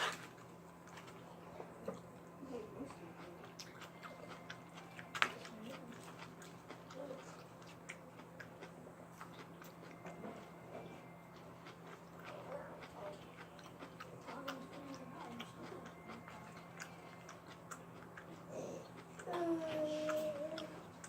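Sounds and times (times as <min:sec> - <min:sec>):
fried chicken chewing and crunching: 0:00.0 - 0:19.3.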